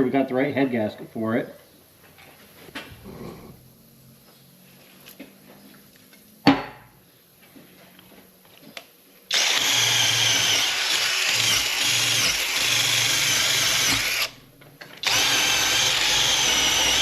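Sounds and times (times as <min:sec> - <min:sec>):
drill with wire brush scrubbing: 0:09.3 - 0:14.4, 0:15.0 - 0:17.0.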